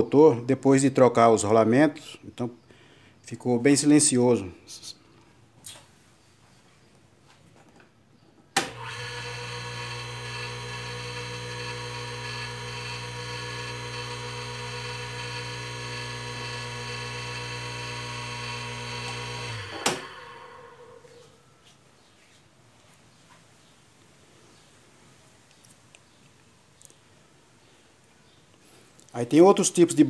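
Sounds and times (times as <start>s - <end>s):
sewing machine motor humming: 8.6s - 21.1s.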